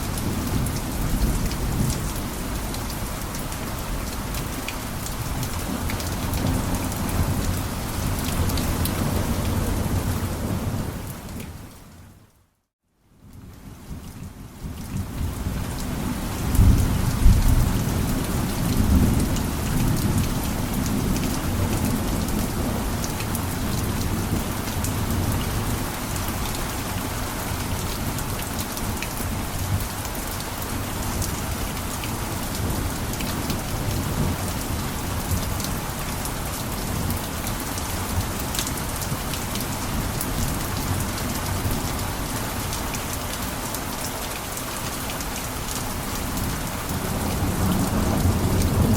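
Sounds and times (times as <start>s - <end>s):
heavy rain on a roof: 0.0s - 48.9s
low rumble of thunder: 13.8s - 25.8s, 46.4s - 48.9s.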